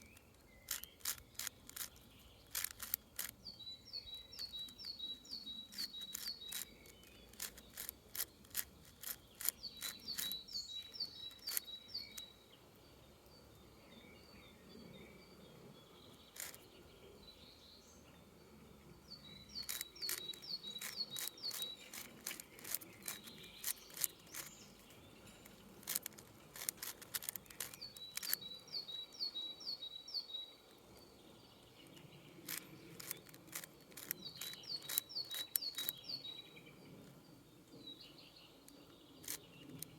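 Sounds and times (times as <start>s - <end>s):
puzzle cube clicking: 0.0s - 3.4s, 5.7s - 12.2s, 16.4s - 16.6s, 19.6s - 24.6s, 25.5s - 28.4s, 32.5s - 36.0s
songbird singing: 0.0s - 39.9s.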